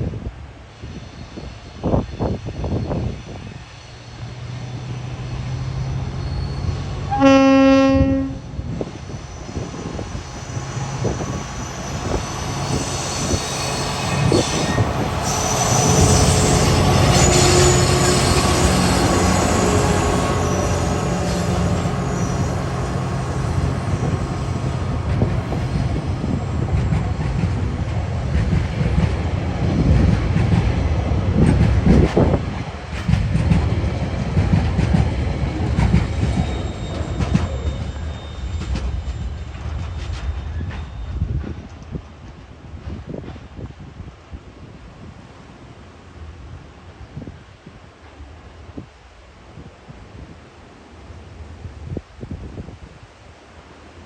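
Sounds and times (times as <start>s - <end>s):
diesel locomotives passing: 0.0s - 49.6s
wheel squeal: 6.1s - 6.9s, 9.2s - 24.8s, 36.1s - 39.5s
train horn blast: 7.0s - 8.6s, 13.0s - 25.2s.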